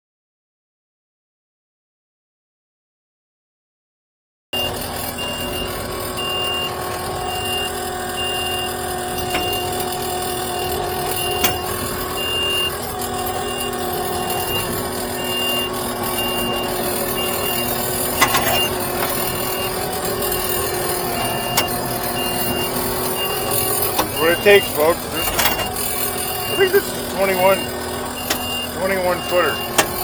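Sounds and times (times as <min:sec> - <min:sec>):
heavy machine engine running: 0:04.6 - 0:30.0
reversing alarm beeping: 0:04.6 - 0:30.0
sharp metal knocks: 0:29.3 - 0:30.0.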